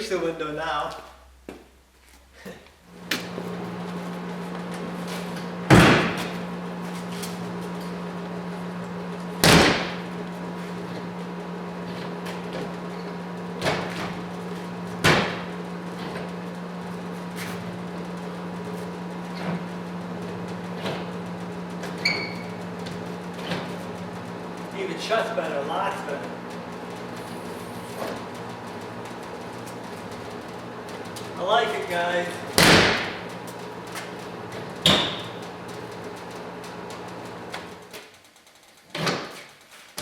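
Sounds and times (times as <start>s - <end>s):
steady low hum: 0.0s - 37.9s
glass hatch slamming shut: 5.7s - 6.4s, 9.4s - 10.1s, 32.6s - 33.3s.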